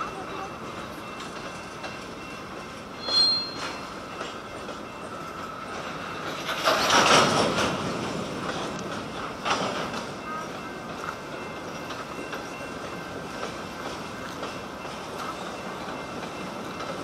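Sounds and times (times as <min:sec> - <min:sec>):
freight train wheels rumbling: 0:00.0 - 0:17.0
wheel squeal: 0:03.0 - 0:03.9.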